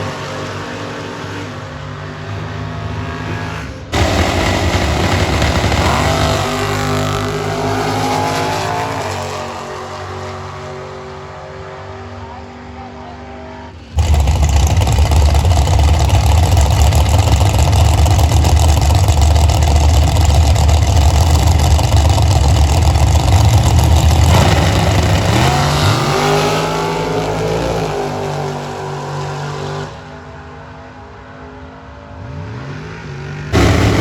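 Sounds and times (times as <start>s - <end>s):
full-throttle engine roar: 0.0s - 12.2s, 13.6s - 30.4s, 32.1s - 34.0s
engine revving: 2.8s - 11.1s, 13.8s - 30.0s, 32.2s - 34.0s
car engine idling: 4.0s - 7.7s, 14.0s - 25.8s, 33.6s - 34.0s.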